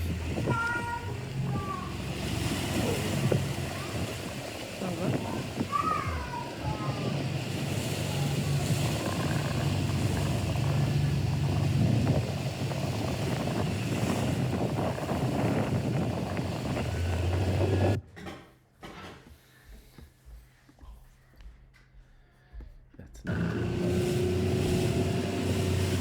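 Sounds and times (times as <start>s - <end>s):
motorboat engine running: 0.0s - 18.0s, 23.3s - 26.0s
water noise: 0.0s - 18.0s, 23.3s - 26.0s
wind: 0.0s - 18.0s, 23.3s - 26.0s.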